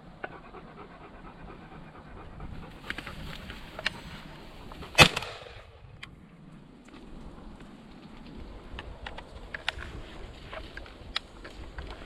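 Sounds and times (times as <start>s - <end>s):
dog panting: 0.0s - 5.0s
loud sharp crack: 4.9s - 6.0s.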